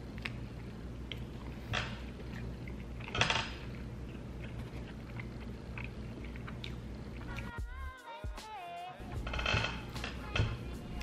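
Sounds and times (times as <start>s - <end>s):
close-up chewing: 0.0s - 7.6s
steady low hum: 0.0s - 11.0s.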